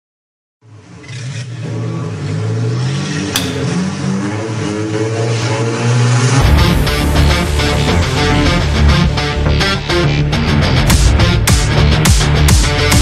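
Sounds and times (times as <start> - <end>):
sharp click: 3.4 - 4.0
music with heavy bass: 6.4 - 13.0.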